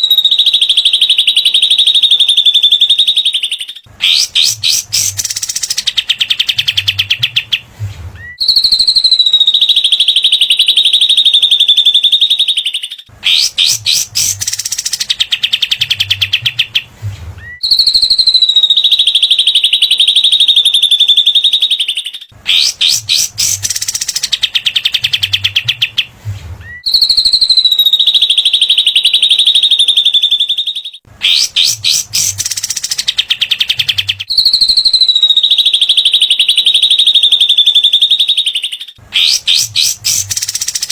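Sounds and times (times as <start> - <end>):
high steady bird whistle: 0.0 - 7.6, 8.2 - 40.9
birdsong rattling notes: 13.3 - 17.6, 22.5 - 26.1, 31.3 - 34.2.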